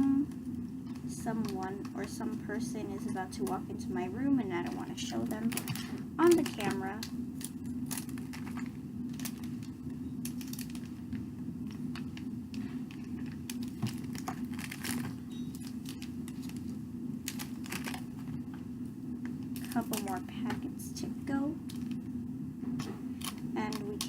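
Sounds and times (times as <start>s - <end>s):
steady low hum: 0.0s - 24.0s
plastic packets rustling: 4.5s - 18.4s, 19.3s - 20.2s, 21.7s - 22.0s, 23.1s - 24.0s.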